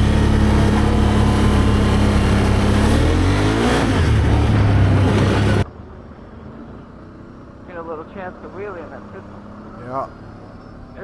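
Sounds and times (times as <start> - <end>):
engine accelerating: 0.0 - 5.7.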